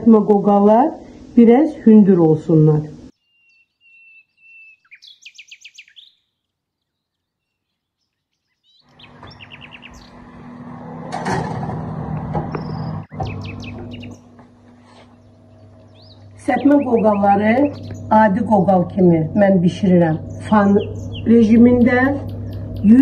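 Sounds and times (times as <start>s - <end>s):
steady hum: 0.0s - 3.2s, 8.9s - 23.0s
small birds chirping: 2.9s - 10.5s, 12.5s - 23.0s.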